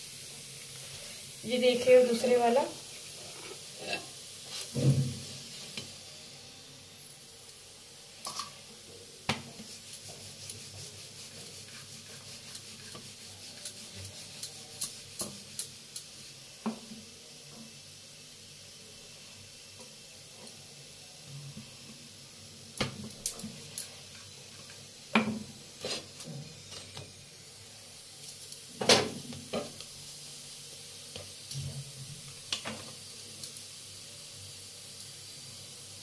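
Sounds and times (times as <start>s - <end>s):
flatbread sizzling on griddle: 0.0s - 36.0s
crackles and pops: 32.3s - 33.7s.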